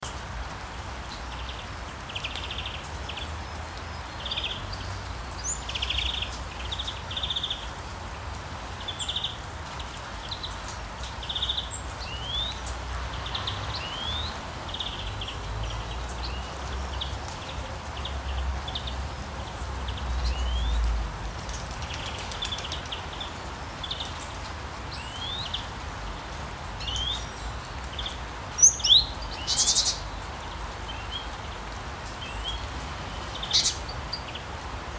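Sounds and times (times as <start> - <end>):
birds chirping: 8.8 - 34.6.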